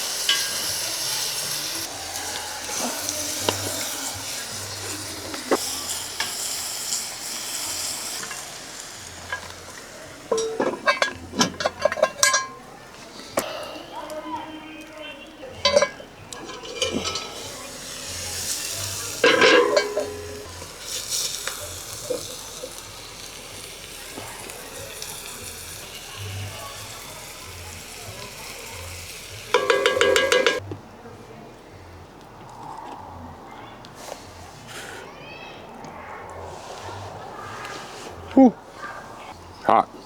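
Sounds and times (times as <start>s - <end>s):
food sizzling in a pan: 0.0s - 12.6s, 15.6s - 30.6s
metal utensil scraping pan: 0.0s - 12.6s, 15.6s - 30.6s.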